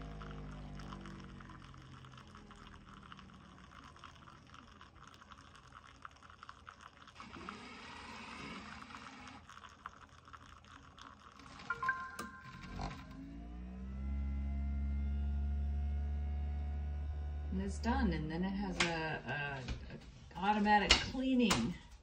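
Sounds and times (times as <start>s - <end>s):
liquid trickling and dribbling: 0.0s - 13.2s
coffee maker humming: 0.0s - 22.0s.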